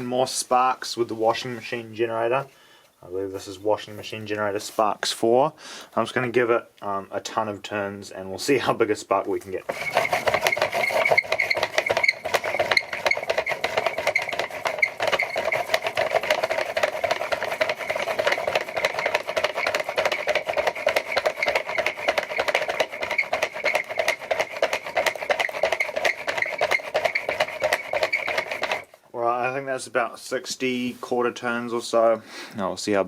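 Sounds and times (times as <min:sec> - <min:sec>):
hand-cranked generator rattle: 0:09.7 - 0:29.0.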